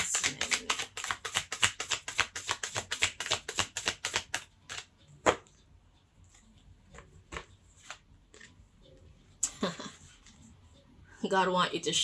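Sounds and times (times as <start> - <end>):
cards being shuffled by hand: 0.0 - 5.4.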